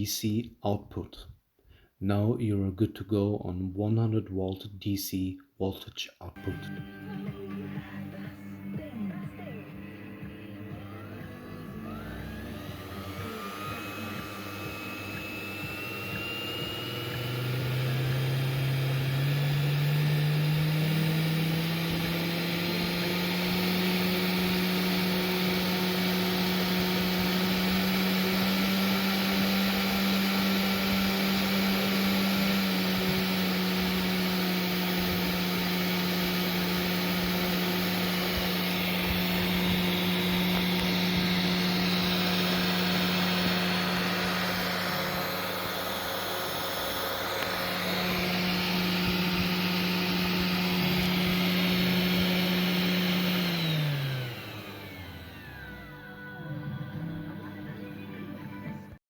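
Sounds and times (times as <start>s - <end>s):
spindle motor whining: 10.6s - 56.2s.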